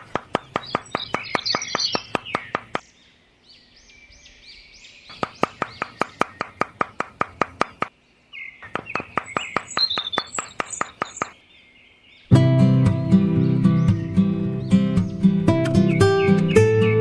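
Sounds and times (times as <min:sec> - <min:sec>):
sharp evenly spaced ticks: 0:00.0 - 0:02.9, 0:05.1 - 0:07.9, 0:08.6 - 0:11.4
birds chirping: 0:00.0 - 0:17.0.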